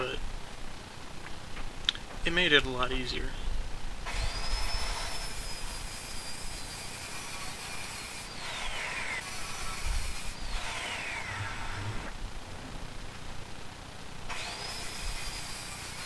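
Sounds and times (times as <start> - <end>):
power saw cutting wood: 4.1 - 12.1, 14.3 - 16.0.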